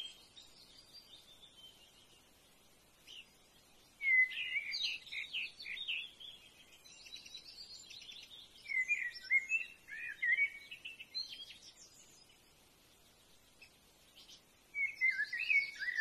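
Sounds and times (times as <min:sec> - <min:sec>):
birds chirping and whistling: 0:03.1 - 0:12.4, 0:14.2 - 0:16.0.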